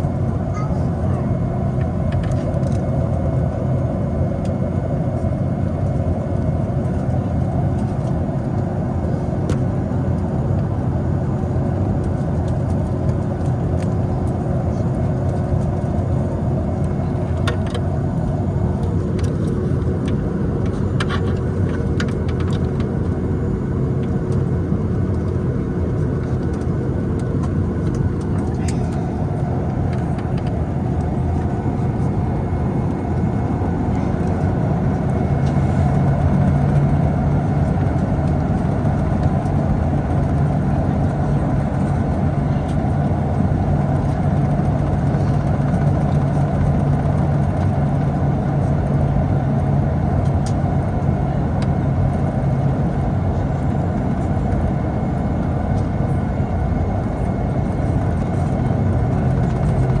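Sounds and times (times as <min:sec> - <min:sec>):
air-conditioning rumble: 0:00.0 - 1:00.0
jet engines at low power: 0:00.0 - 1:00.0
low drone: 0:26.2 - 1:00.0.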